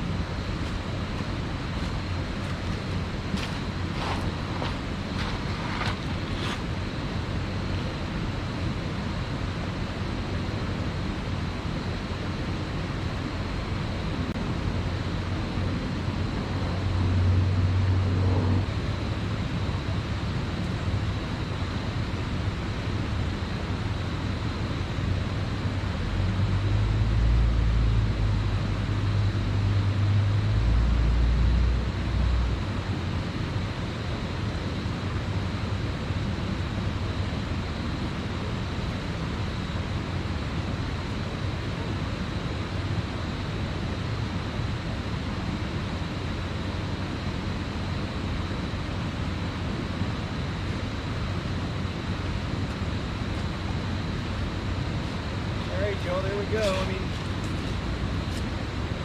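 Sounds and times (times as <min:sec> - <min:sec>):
deep rumble: 0:00.0 - 0:08.7, 0:14.0 - 0:19.4.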